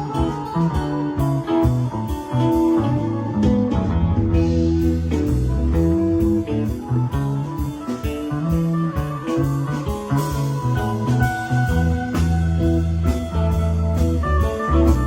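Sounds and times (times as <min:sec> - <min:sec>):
bass: 0:00.0 - 0:15.0
drums: 0:00.0 - 0:15.0
guitar lines: 0:00.0 - 0:15.0.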